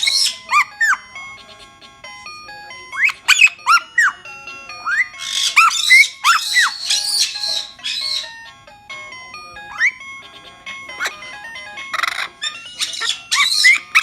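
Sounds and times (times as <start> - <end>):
parrot screeching: 0.0 - 1.1, 2.9 - 4.2, 4.8 - 8.4, 9.7 - 10.0, 10.9 - 14.0
parrot whistling: 0.0 - 1.8, 2.8 - 8.5, 9.6 - 10.2, 10.8 - 14.0
background music: 0.0 - 14.0.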